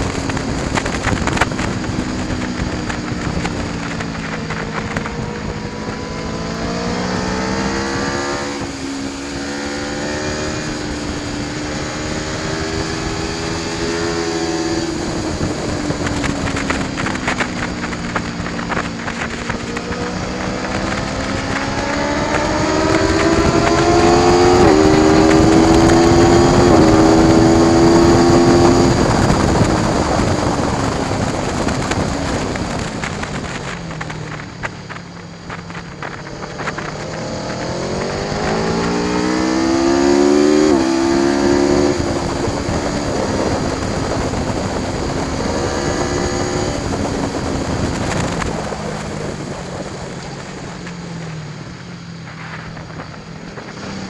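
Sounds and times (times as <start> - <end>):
motorcycle engine accelerating: 0.0 - 54.0
wind rush: 0.0 - 54.0.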